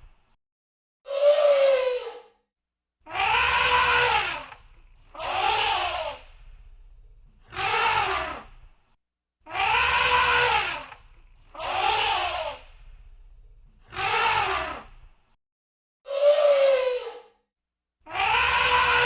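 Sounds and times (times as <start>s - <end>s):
elephant trumpeting: 3.1s - 6.2s, 7.5s - 8.5s, 9.5s - 12.7s, 13.9s - 14.9s, 18.1s - 19.0s.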